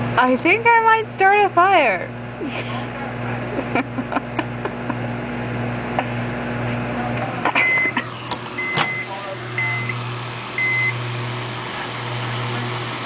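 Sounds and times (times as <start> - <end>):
microwave oven humming: 0.0 - 13.0
microwave end beep: 7.6 - 8.0, 8.6 - 11.2.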